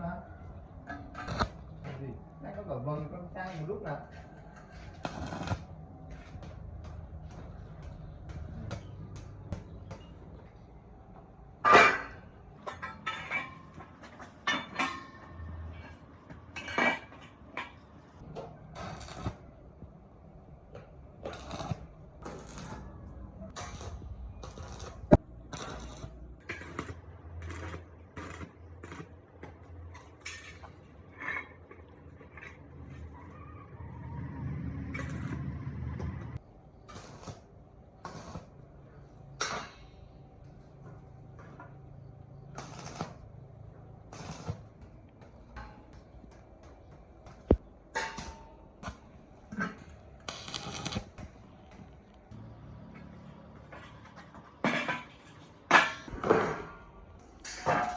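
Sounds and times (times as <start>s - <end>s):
hard objects clanking with metallic ringing: 11.6s - 15.9s, 53.0s - 57.9s.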